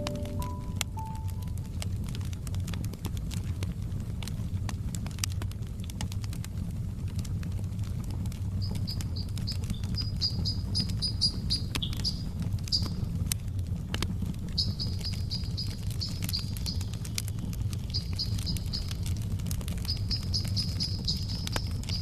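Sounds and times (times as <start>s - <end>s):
bird chirping: 0.0s - 1.4s, 8.6s - 12.9s, 14.6s - 17.0s, 17.9s - 19.0s, 19.9s - 22.0s
wood fire crackling and popping: 0.0s - 22.0s.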